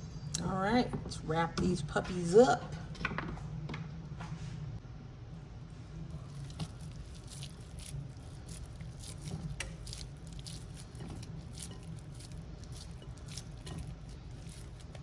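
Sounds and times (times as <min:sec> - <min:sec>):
steady low hum: 0:00.0 - 0:15.0
wet sticky squishes of raw bacon: 0:06.1 - 0:15.0.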